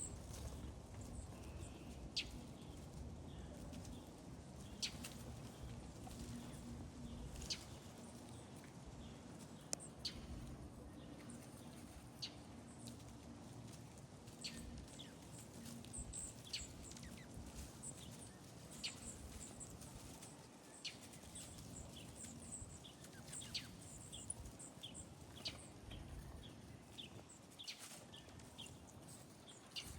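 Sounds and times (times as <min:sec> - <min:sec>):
birds chirping: 0:00.0 - 0:13.7, 0:14.3 - 0:29.9
faint low hum: 0:00.0 - 0:29.9.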